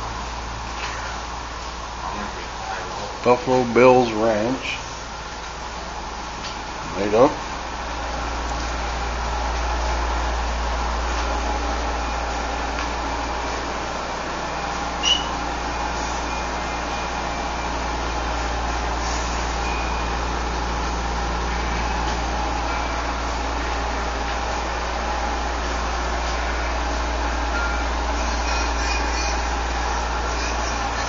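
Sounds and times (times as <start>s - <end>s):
vehicle engine idling: 0.0s - 31.0s
brief high chirp: 15.0s - 15.4s.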